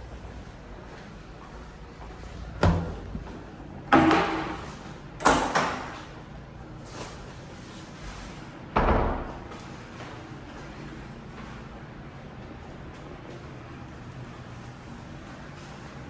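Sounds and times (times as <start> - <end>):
doors banging shut: 2.5 - 4.6.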